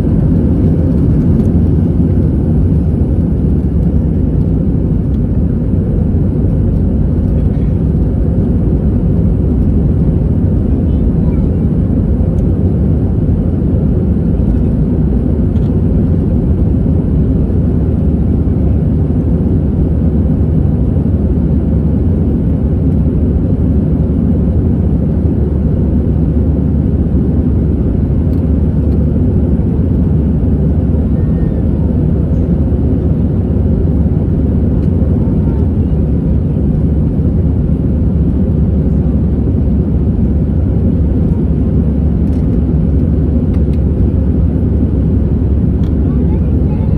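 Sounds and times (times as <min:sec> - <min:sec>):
jet engine cabin rumble: 0:00.0 - 0:46.9.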